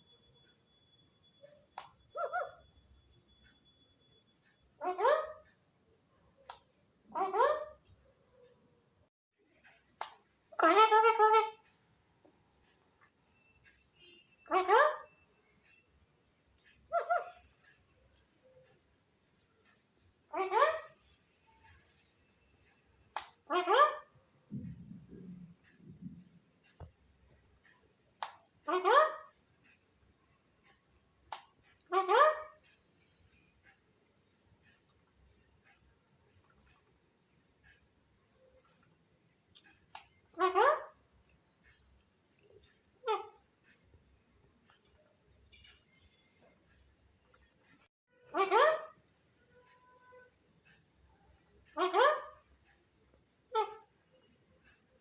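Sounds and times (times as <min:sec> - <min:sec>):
crickets chirring: 0:00.0 - 0:55.0
high insect drone: 0:00.0 - 0:55.0
parrot squawking: 0:02.2 - 0:02.6, 0:04.8 - 0:05.4, 0:07.1 - 0:07.8, 0:10.5 - 0:11.6, 0:14.5 - 0:15.1, 0:16.9 - 0:17.4, 0:20.3 - 0:21.0, 0:23.5 - 0:24.1, 0:28.7 - 0:29.4, 0:31.9 - 0:32.6, 0:40.3 - 0:41.0, 0:43.0 - 0:43.4, 0:48.3 - 0:49.0, 0:51.8 - 0:52.4, 0:53.5 - 0:53.8.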